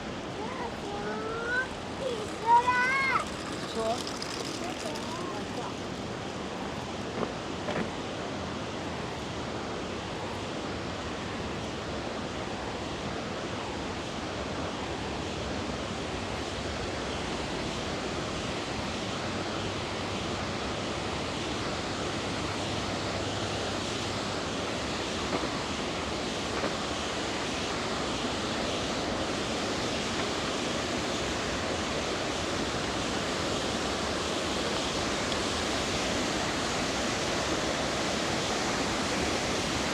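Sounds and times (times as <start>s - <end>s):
river rushing: 0.0s - 7.5s.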